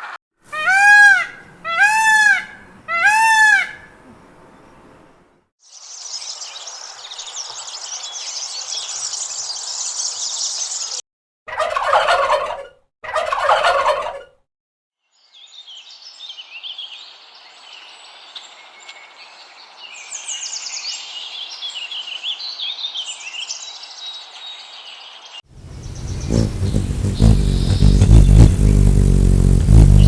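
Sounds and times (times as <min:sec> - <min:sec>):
birds twittering and chirping: 0:03.6 - 0:11.0, 0:15.2 - 0:30.0
loud bird calls: 0:20.1 - 0:28.7
small birds chattering: 0:24.5 - 0:30.0.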